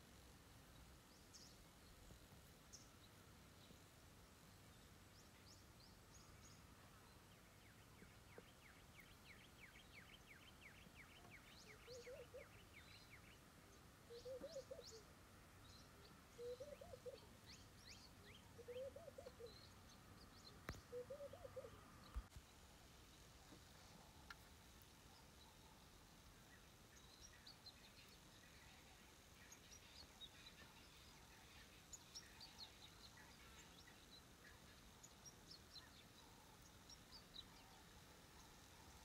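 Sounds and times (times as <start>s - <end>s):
bird chirps: 4.8s - 15.1s, 15.7s - 22.4s
low bird call: 14.1s - 15.1s, 20.6s - 22.3s.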